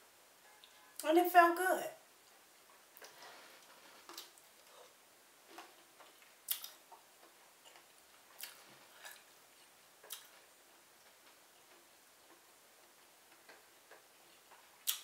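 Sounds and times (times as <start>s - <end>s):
person chewing with wet smacks: 4.0s - 15.0s.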